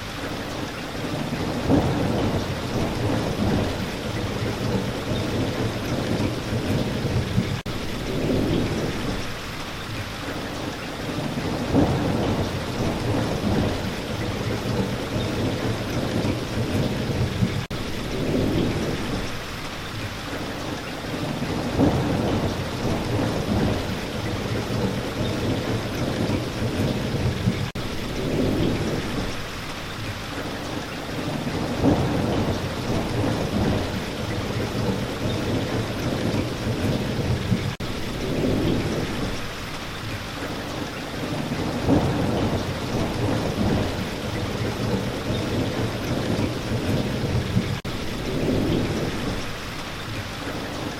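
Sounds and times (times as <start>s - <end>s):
steady rain falling: 0.0s - 50.9s
thunder rumbling: 0.5s - 9.9s, 10.9s - 19.6s, 20.6s - 40.1s, 40.7s - 50.9s.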